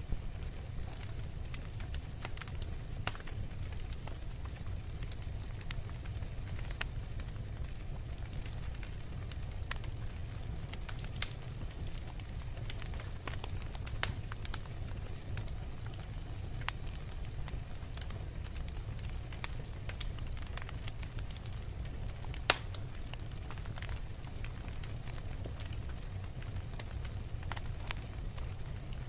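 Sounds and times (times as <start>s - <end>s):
low rumble of flames: 0.0s - 29.0s
logs crackling and snapping: 0.4s - 29.0s
loud pop from fire: 22.5s - 22.8s.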